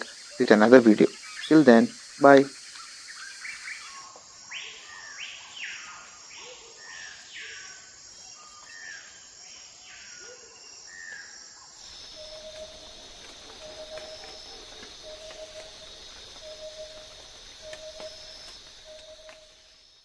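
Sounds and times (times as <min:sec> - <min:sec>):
insect trill: 0:00.0 - 0:20.0
small bird chirping: 0:11.8 - 0:20.0.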